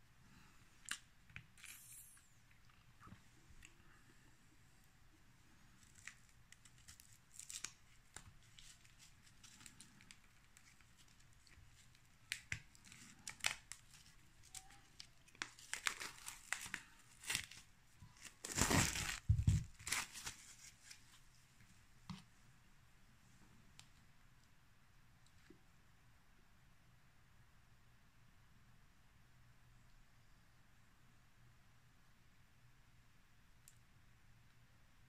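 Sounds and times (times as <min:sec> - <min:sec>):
plastic cling film crinkling and tearing: 0:05.8 - 0:21.2.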